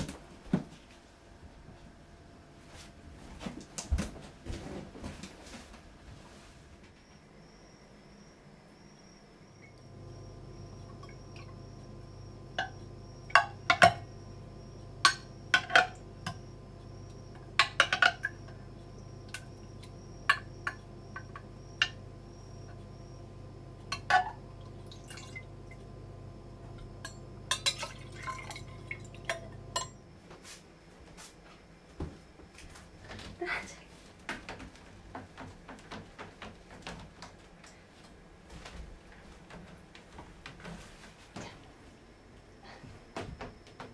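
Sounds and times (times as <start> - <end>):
steady low hum: 0.0 - 43.9
liquid dripping: 24.5 - 25.8, 27.0 - 29.9
glass and dishes clinking: 27.0 - 30.0.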